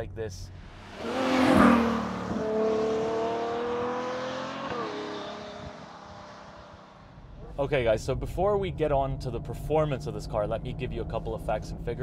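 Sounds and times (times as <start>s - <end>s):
sports car passing at speed: 0.6s - 7.3s.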